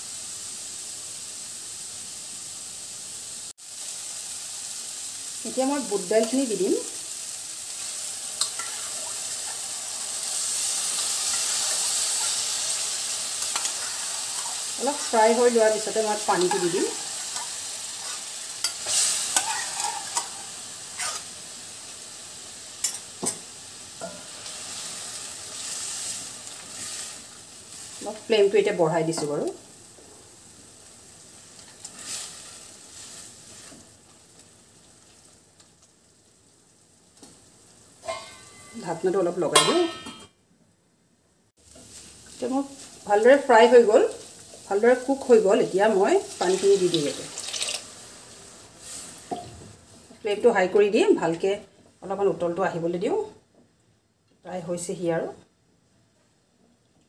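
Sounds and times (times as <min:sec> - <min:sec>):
food sizzling in hot oil: 0:00.0 - 0:40.3, 0:41.6 - 0:53.2
steel spoon clinking pot: 0:38.0 - 0:38.9, 0:39.6 - 0:40.3.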